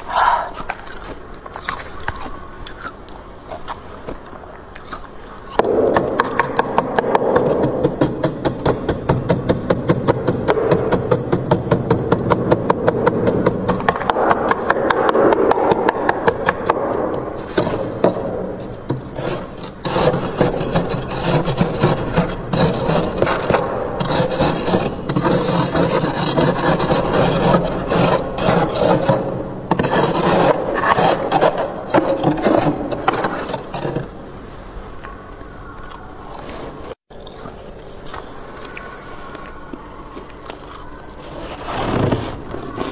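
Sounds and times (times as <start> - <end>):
frost scraped off freezer: 13.4 - 34.2.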